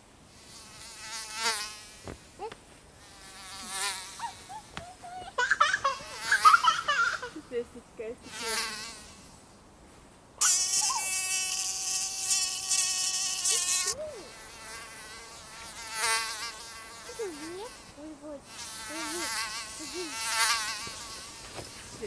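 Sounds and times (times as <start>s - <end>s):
mosquito whining in flight: 3.6s - 5.2s.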